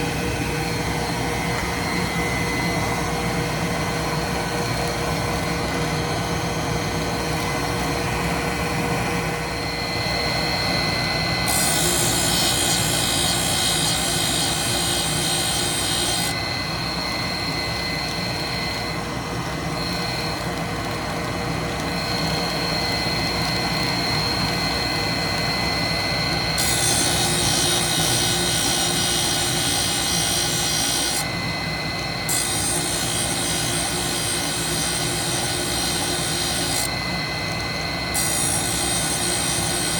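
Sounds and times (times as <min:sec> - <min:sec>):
grinder motor humming: 0:00.0 - 0:39.9
hissing grind of wheel on metal: 0:11.5 - 0:16.4, 0:26.6 - 0:31.2, 0:32.3 - 0:36.9.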